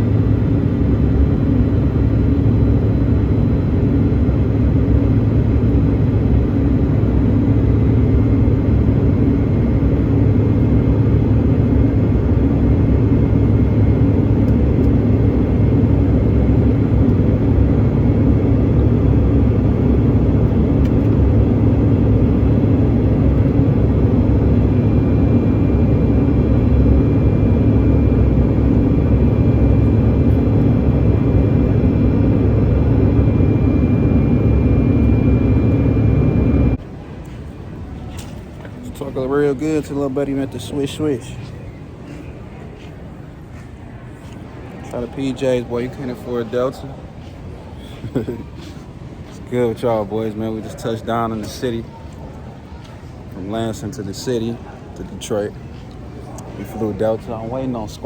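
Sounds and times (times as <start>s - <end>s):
jet engines droning in cabin: 0.0s - 58.0s
faint high whine: 5.7s - 36.8s.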